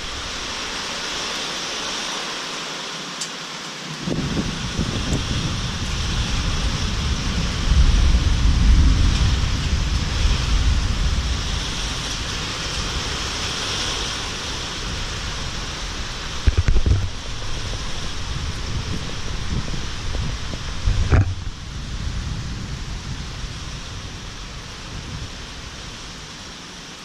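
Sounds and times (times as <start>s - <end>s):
rain and wind hiss: 0.0s - 27.0s
low thunder rumble: 4.0s - 26.6s
sharp low knocks: 20.1s - 21.6s.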